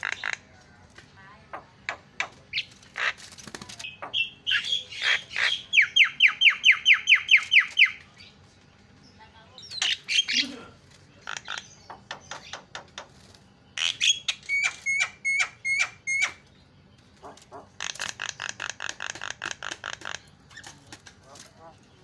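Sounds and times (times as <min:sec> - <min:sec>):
bird giving harsh chattering calls: 0:00.0 - 0:00.5, 0:01.5 - 0:08.0, 0:09.6 - 0:10.6, 0:11.2 - 0:13.2, 0:13.8 - 0:16.5, 0:17.2 - 0:21.8.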